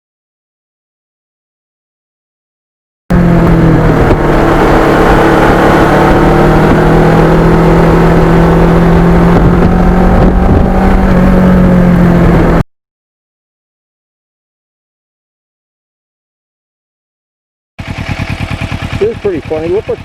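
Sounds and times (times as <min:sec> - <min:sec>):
motorcycle engine running: 0:03.1 - 0:12.6, 0:17.8 - 0:20.0.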